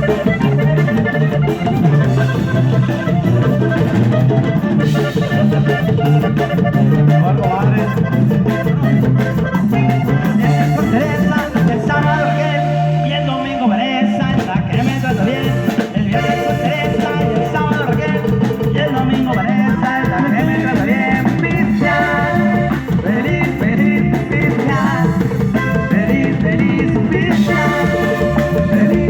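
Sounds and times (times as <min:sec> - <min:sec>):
live band playing: 0:00.0 - 0:29.0.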